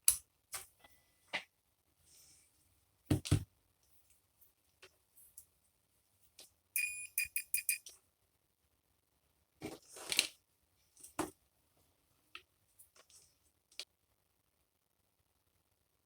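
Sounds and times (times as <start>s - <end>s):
multimeter continuity beeps: 6.8s - 7.9s.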